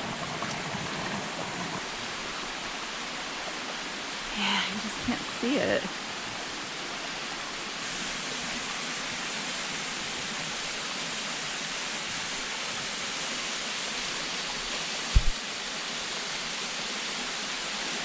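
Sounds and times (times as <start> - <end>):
waterfall rushing: 0.0 - 16.8
low thumps: 15.1 - 15.4.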